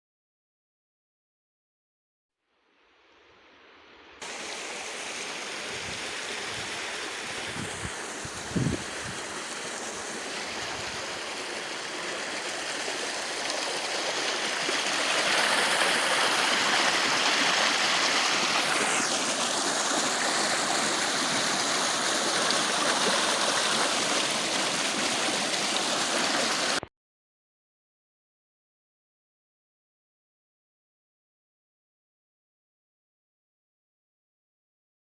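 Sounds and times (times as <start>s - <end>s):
river water rushing: 4.2s - 26.8s.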